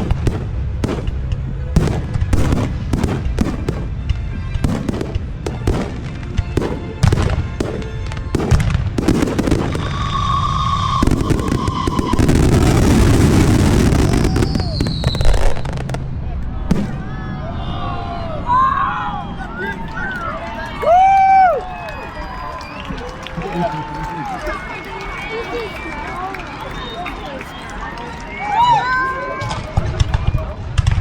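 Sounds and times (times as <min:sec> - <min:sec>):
firework crackling: 0:00.0 - 0:17.2
firework bangs: 0:00.0 - 0:17.4, 0:29.4 - 0:31.0
firework whistle: 0:04.6 - 0:16.0
falling firework whistle: 0:06.6 - 0:16.0.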